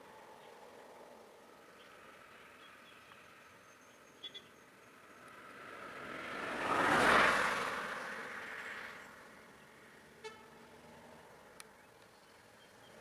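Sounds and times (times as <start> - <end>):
vehicle passing by: 5.2 - 9.2.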